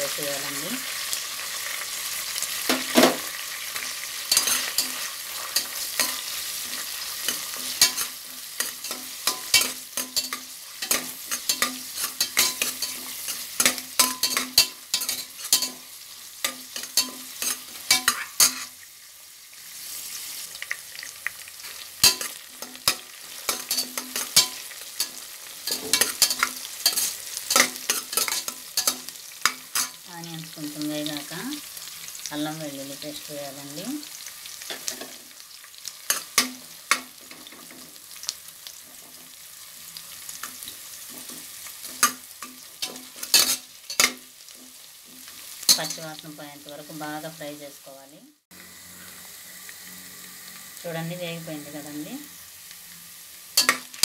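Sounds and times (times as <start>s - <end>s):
onions sizzling in hot oil: 0.0s - 54.0s
steel spoon scraping a pot: 4.3s - 15.8s, 16.4s - 18.8s, 21.6s - 30.0s.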